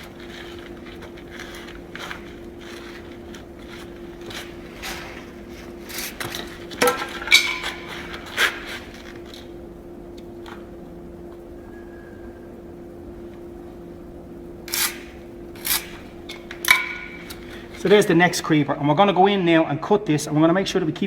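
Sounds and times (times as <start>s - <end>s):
tools scraping timber: 0.0s - 9.6s, 14.7s - 18.5s
steady low hum: 0.0s - 21.0s.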